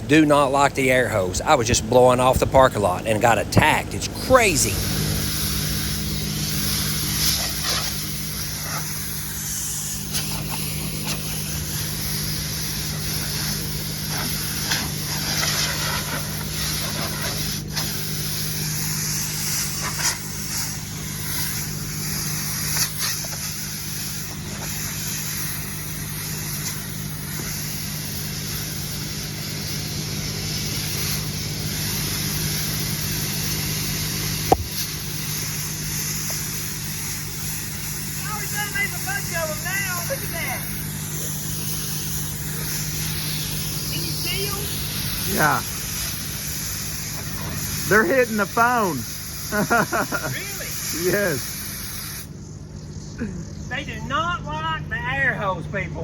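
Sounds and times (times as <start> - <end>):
low compressor hum: 0.0 - 49.5, 50.6 - 56.0
air hose hissing: 2.0 - 53.9
sharp taps: 34.5 - 34.8.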